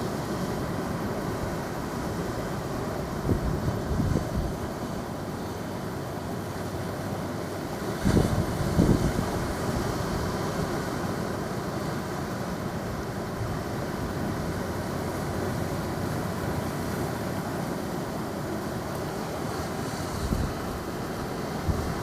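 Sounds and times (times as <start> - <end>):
ocean surf washing: 0.0 - 22.0
wind on microphone: 3.1 - 4.8, 8.0 - 10.8, 19.9 - 22.0.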